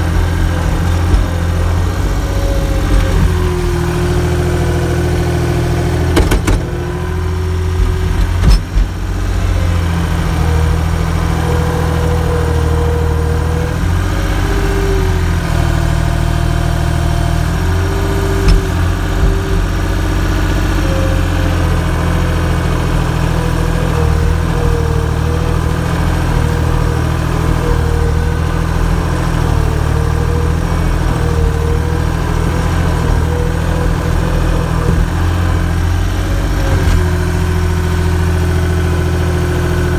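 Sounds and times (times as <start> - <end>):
engine running steadily: 0.0 - 39.9
sharp knocks: 6.1 - 6.9.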